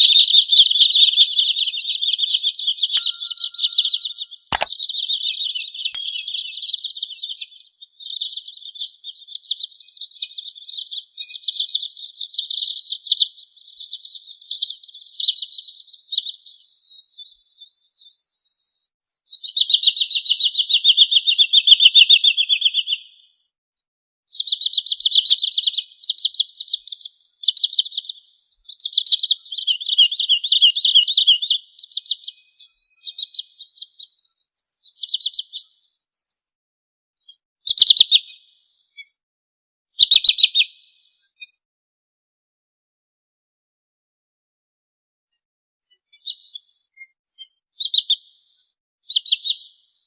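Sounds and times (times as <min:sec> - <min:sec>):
bird calling in rapid trills: 0:03.0 - 0:04.2.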